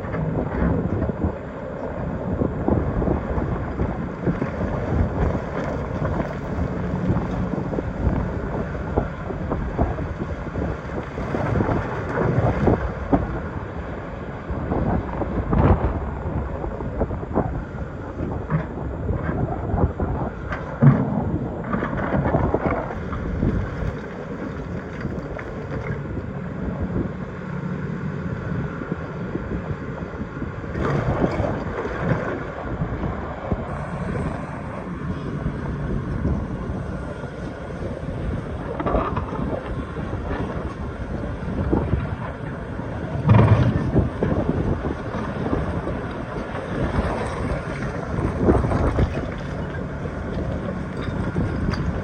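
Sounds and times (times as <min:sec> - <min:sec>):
excavator diesel engine: 0:00.0 - 0:16.9, 0:22.9 - 0:52.0.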